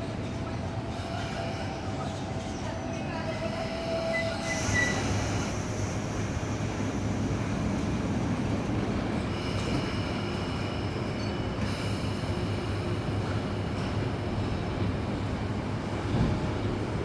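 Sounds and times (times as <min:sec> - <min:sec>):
electric train rumble: 0:00.0 - 0:17.0
high wheel squeal: 0:03.7 - 0:05.9.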